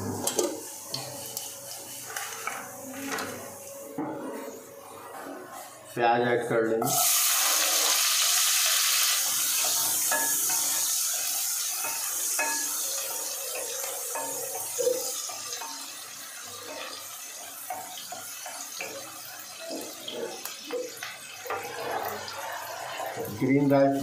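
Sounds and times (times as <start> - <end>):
wooden spatula scraping pan: 0.0 - 3.4
onion sizzling in hot oil: 0.0 - 3.8, 6.9 - 24.0.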